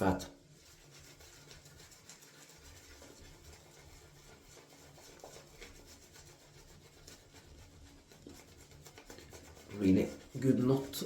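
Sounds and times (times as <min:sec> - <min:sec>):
shaving brush swishing lather: 0:00.0 - 0:11.0.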